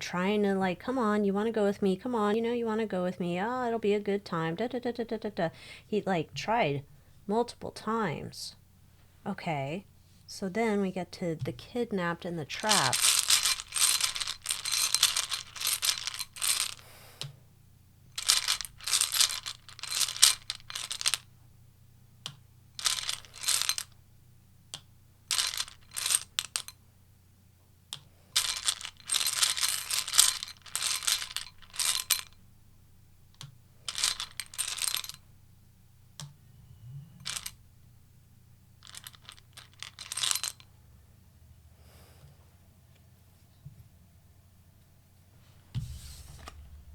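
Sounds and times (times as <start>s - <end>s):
cards being shuffled: 12.6s - 16.8s, 45.8s - 46.9s.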